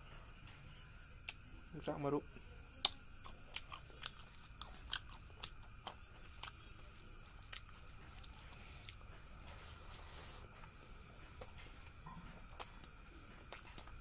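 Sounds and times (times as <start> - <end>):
person chewing with wet smacks: 2.8 - 9.6, 10.5 - 14.0.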